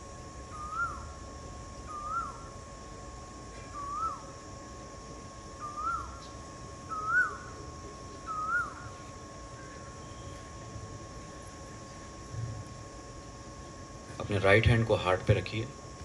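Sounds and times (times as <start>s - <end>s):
faint high hum: 0.0s - 16.0s
bird whistling call: 0.5s - 1.1s, 1.9s - 2.5s, 3.7s - 4.3s, 5.6s - 6.3s, 6.9s - 7.5s, 8.2s - 9.0s.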